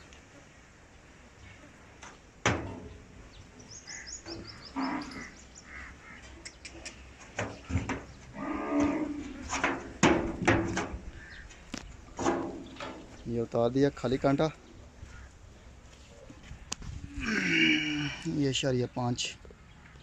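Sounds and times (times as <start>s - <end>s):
cattle lowing: 3.8s - 13.2s, 14.8s - 18.3s
sharp knocks: 9.5s - 11.0s.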